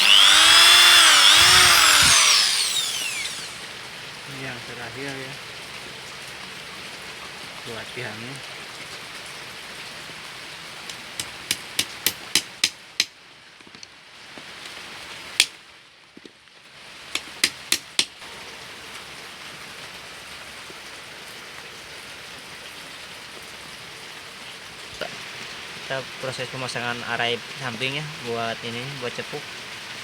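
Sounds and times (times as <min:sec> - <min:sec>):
light hammer taps: 0:10.9 - 0:13.9.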